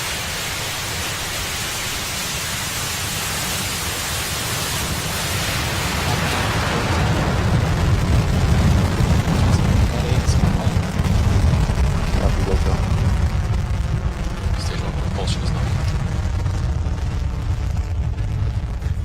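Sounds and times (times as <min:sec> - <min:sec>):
deep crackling rumble: 0:00.0 - 0:19.0
rocket engines rushing roar: 0:00.0 - 0:19.0.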